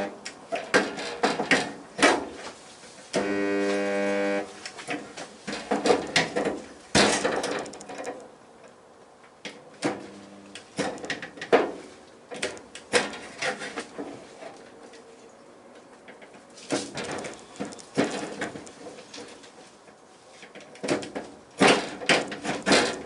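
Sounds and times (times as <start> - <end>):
metal knocks and clanks: 4.9 - 8.2, 20.8 - 23.0.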